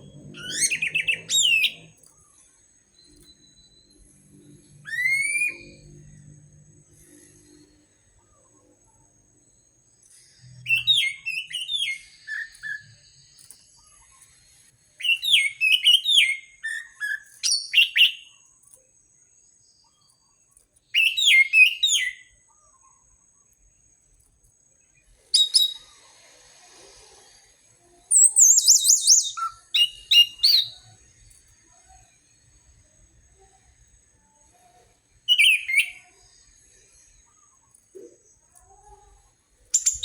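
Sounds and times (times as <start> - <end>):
thrush singing whistled phrases: 0.2 - 2.0, 4.7 - 6.0, 10.6 - 13.6, 15.0 - 18.3, 20.9 - 22.4, 25.3 - 25.9, 28.1 - 30.9, 35.3 - 36.2, 39.7 - 40.0.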